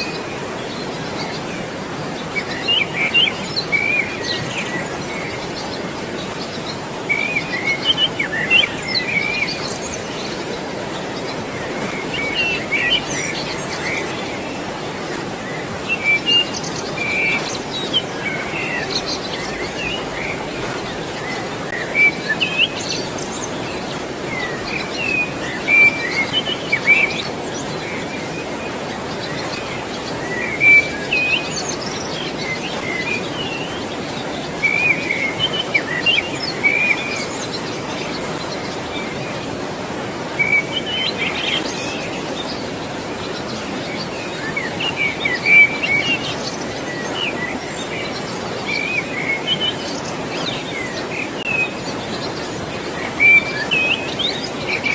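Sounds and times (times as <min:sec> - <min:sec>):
flowing water: 0:00.0 - 0:54.9
birds chirping and whistling: 0:11.1 - 0:39.2.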